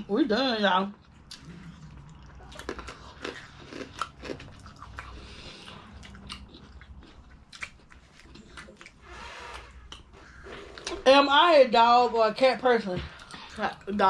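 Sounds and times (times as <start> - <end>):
crunching and chewing food: 0.9 - 11.0.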